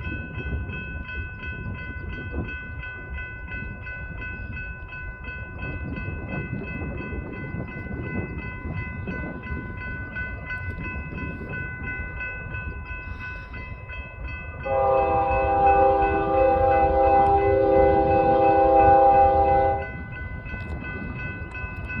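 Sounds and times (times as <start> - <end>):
railroad crossing bell ringing: 0.0 - 22.0
locomotive air horn blowing: 14.7 - 19.8.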